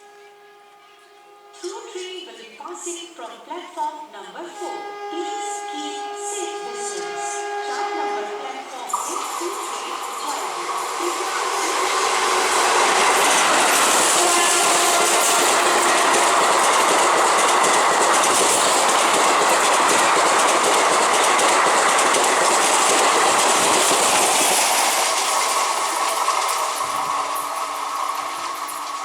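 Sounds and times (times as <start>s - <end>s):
train wheels on rails rushing: 4.7s - 29.0s.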